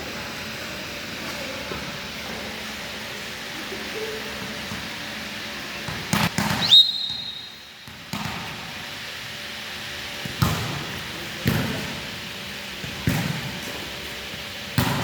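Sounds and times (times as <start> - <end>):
volleyball being hit: 5.8 - 8.9, 10.2 - 12.2, 12.8 - 15.0.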